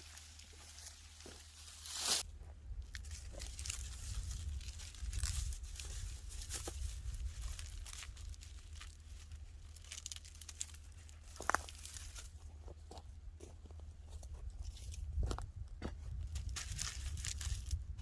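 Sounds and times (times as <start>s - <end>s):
dry stems crackling and rustling: 0.0s - 13.0s, 14.4s - 15.4s, 16.1s - 18.0s
stems snapping: 9.7s - 12.2s.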